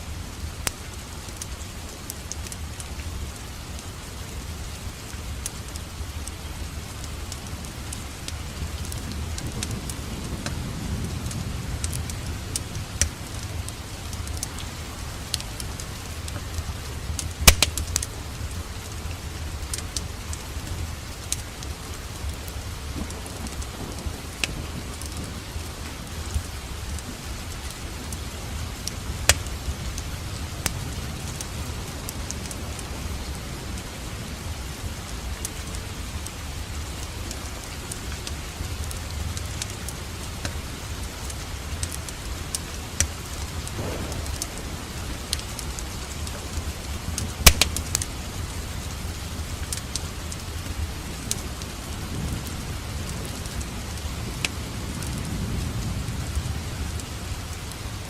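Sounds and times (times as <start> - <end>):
steady rain: 0.0 - 58.0
wood fire crackling and popping: 0.3 - 34.1, 34.8 - 55.3.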